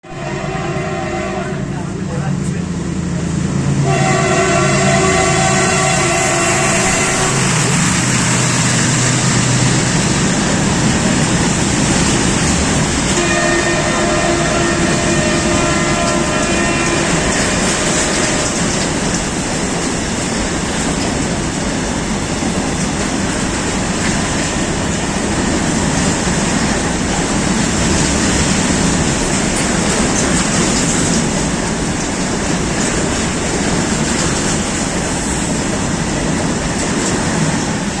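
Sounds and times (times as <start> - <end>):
locomotive horn: 0.0 - 1.9, 3.8 - 8.0, 13.1 - 18.9
train wheels rumbling and clattering: 0.2 - 38.0.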